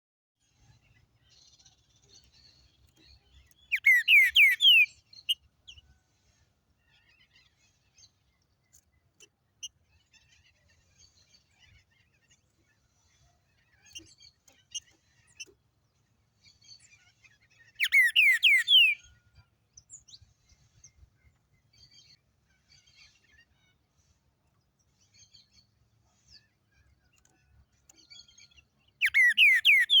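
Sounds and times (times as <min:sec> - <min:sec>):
faint bird chirps: 0:00.4 - 0:30.0
songbird downward phrases: 0:03.7 - 0:04.8, 0:17.8 - 0:19.0, 0:29.0 - 0:30.0.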